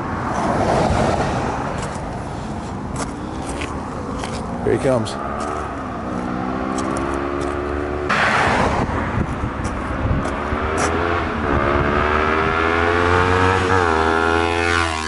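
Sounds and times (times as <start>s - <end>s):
motorcycle engine revving: 4.8s - 9.0s, 9.6s - 15.0s.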